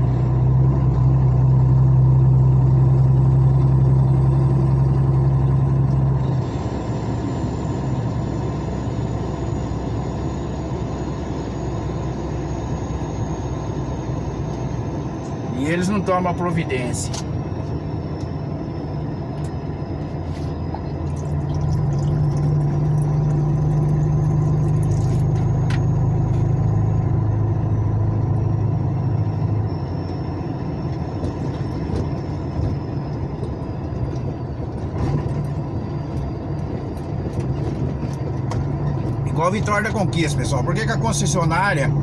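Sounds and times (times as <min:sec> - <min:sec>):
truck engine humming: 0:00.0 - 0:42.0.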